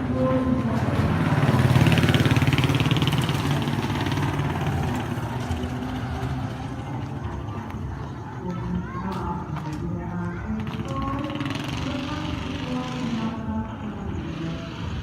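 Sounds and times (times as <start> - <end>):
motorcycle engine passing: 0.0 - 7.3, 10.5 - 15.0.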